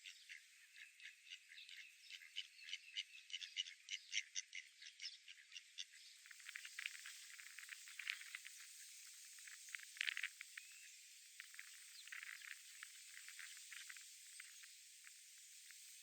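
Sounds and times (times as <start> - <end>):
steady hiss: 6.2 - 16.0.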